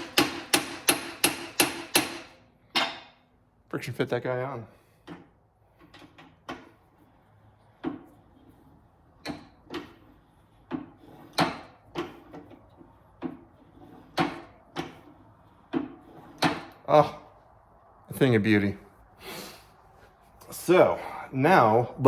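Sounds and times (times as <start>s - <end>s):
sharp knocks on metal: 0.0s - 3.2s.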